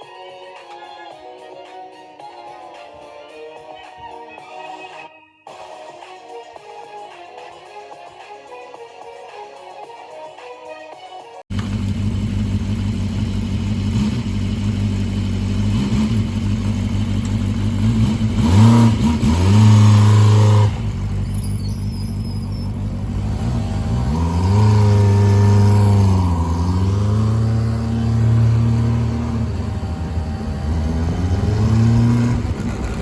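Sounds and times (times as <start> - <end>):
scooter engine idling and revving: 11.5 - 33.0.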